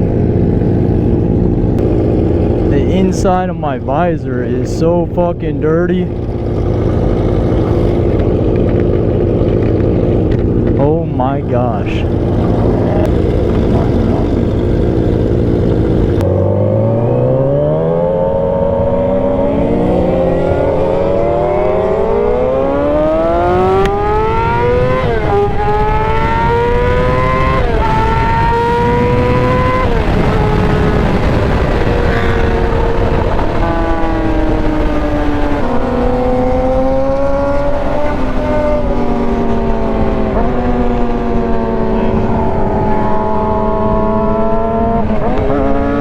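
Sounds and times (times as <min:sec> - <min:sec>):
wind rush: 0:00.0 - 0:16.2, 0:22.9 - 0:46.0
motorcycle engine accelerating: 0:00.0 - 0:46.0.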